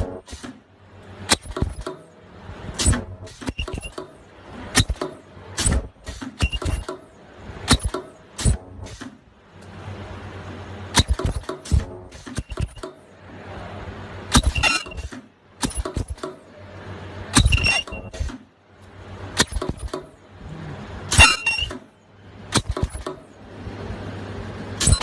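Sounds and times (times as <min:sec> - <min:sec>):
welding machine clacks: 0:00.0 - 0:09.8, 0:10.7 - 0:13.1, 0:14.3 - 0:16.5, 0:17.3 - 0:20.2, 0:21.1 - 0:23.4.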